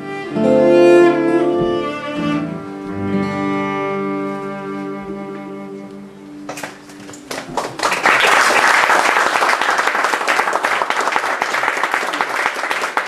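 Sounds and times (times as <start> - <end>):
cello and guitar notes: 0.0 - 7.2
audience applauding: 6.6 - 13.0.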